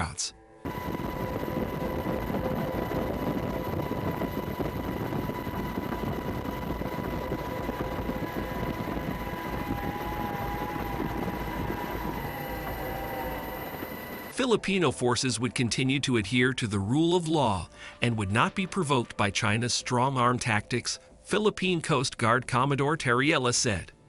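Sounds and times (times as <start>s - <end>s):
faint high whining tones: 0.0s - 14.6s
engine drone: 0.6s - 14.3s
dense rushing noise: 0.7s - 14.3s
faint wavering tone: 0.7s - 14.3s.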